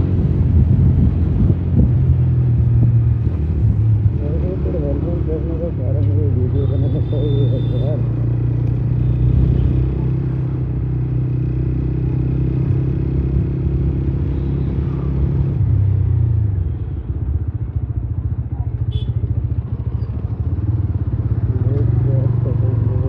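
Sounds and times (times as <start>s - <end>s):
motorcycle engine running: 16.0s - 23.0s.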